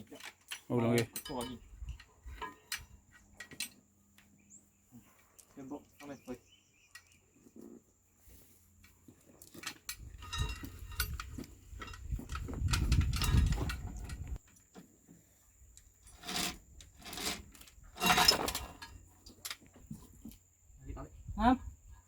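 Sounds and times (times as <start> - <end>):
metal tools clinking: 0.0 - 3.8, 8.7 - 14.4, 16.0 - 19.7.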